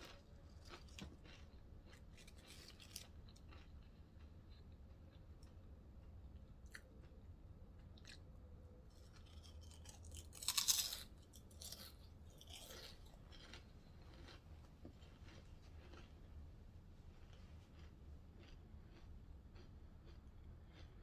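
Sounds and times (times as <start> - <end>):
crunchy bite: 9.2 - 14.4
chewing mouth clicks and smacks: 17.3 - 21.0.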